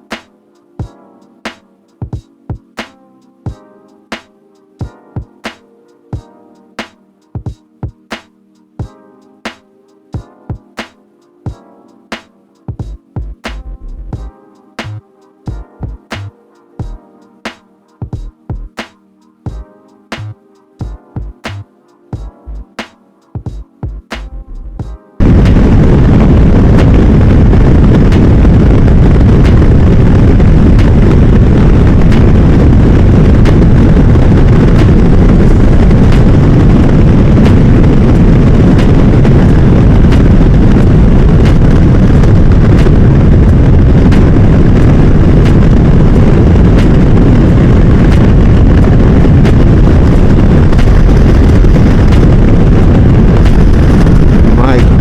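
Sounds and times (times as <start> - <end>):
wind buffeting microphone: 24.6 - 55.0.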